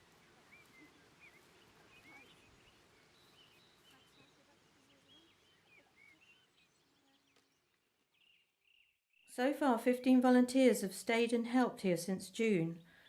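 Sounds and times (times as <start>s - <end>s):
background hiss: 0.0s - 7.5s
faint birdsong: 0.0s - 10.1s, 11.2s - 13.0s.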